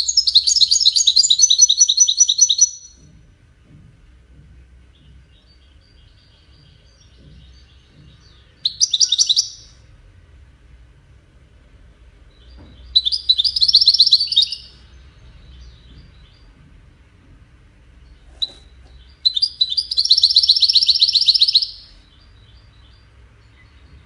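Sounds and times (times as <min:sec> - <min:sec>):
goldfinch singing: 0:00.0 - 0:03.0, 0:05.0 - 0:09.8, 0:12.3 - 0:14.8, 0:18.4 - 0:24.0.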